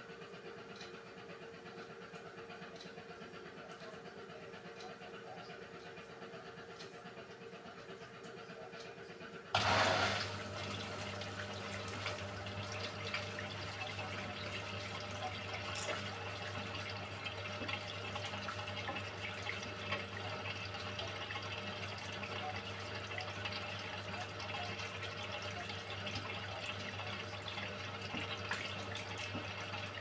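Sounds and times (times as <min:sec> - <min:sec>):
washing machine low hum: 0:09.6 - 0:30.0
water rushing through washing machine: 0:09.6 - 0:30.0.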